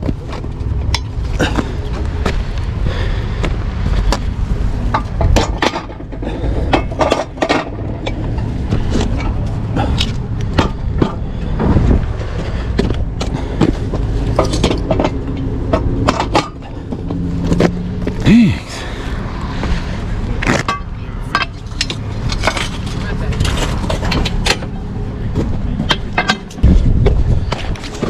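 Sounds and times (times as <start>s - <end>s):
truck engine running: 0.0s - 28.0s
metal clanks and knocks: 4.1s - 17.7s, 20.4s - 28.0s.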